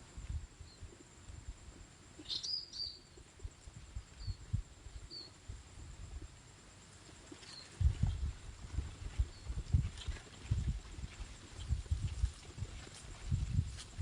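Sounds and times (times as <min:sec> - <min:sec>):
songbird chirping: 0:00.0 - 0:05.5, 0:06.1 - 0:08.2.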